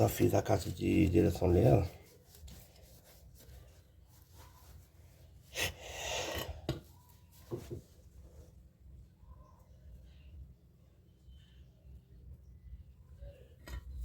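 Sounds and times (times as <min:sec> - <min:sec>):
scraping rustle: 0:00.0 - 0:05.4.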